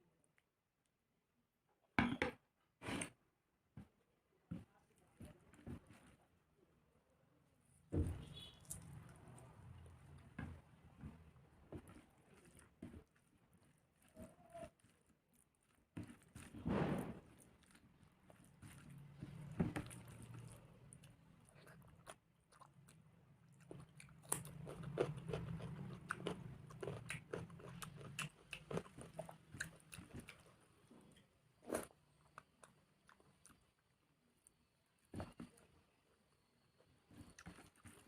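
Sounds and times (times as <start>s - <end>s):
close chewing and crunching: 8.6s - 38.0s.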